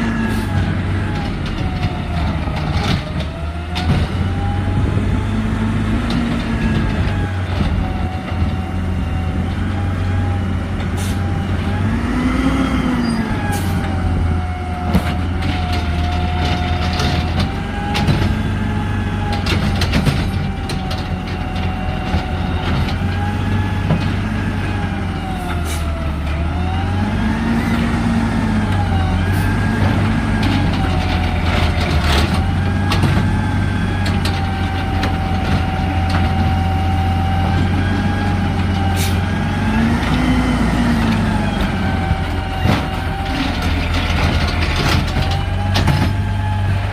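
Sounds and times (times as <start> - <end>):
garbage truck engine drone: 0.0 - 46.9
sharp clanks and knocks: 19.3 - 24.2, 42.6 - 46.3.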